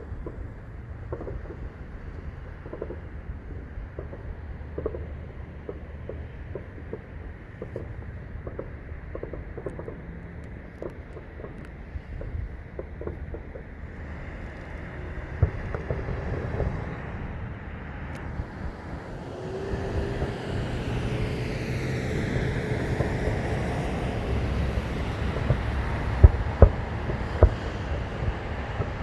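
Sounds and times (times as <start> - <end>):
distant fireworks popping: 0.0 - 29.0
road traffic rumble: 0.0 - 29.0
vehicle passing: 13.7 - 29.0.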